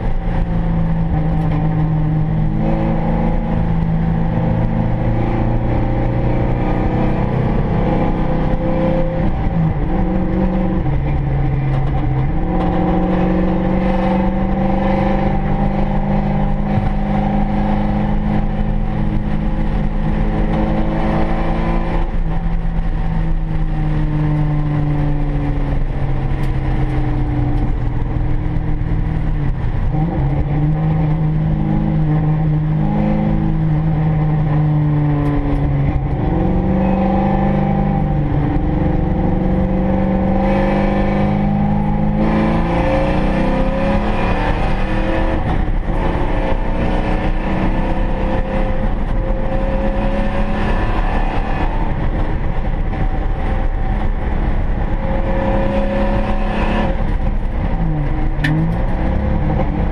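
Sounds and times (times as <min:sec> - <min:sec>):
car engine revving: 0:00.0 - 0:59.9
road and wind noise: 0:00.0 - 0:59.9.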